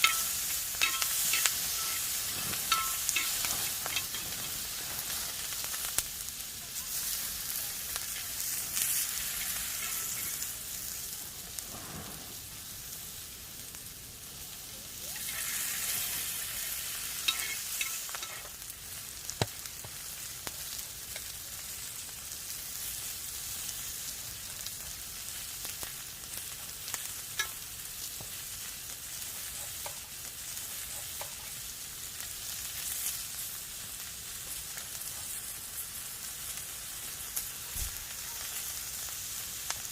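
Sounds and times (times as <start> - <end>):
food sizzling on a griddle: 0.0 - 39.9.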